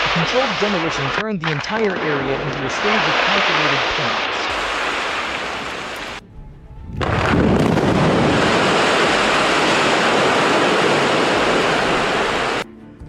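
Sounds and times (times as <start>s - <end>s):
loud rushing noise: 2.6s - 6.2s, 6.9s - 12.6s.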